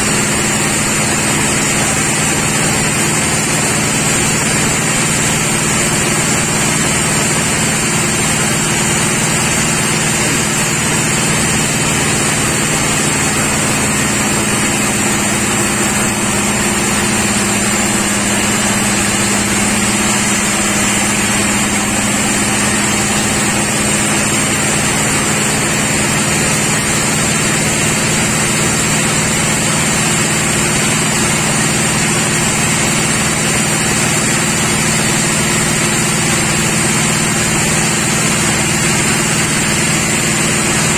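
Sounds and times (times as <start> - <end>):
high machine whine: 0.0 - 40.9
sawmill machinery drone: 0.0 - 40.9.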